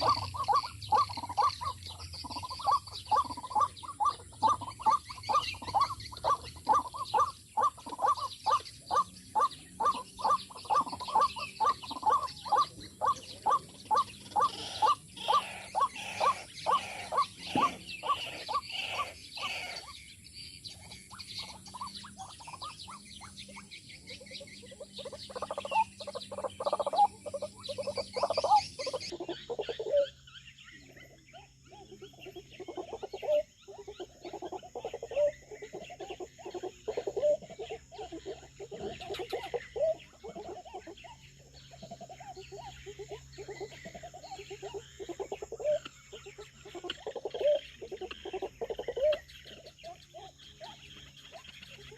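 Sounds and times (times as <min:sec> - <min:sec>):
waterbird deep calls: 0:00.0 - 0:20.0, 0:20.8 - 0:30.1
bird calls and trills: 0:00.0 - 0:51.9
small birds chirping: 0:00.0 - 0:51.9.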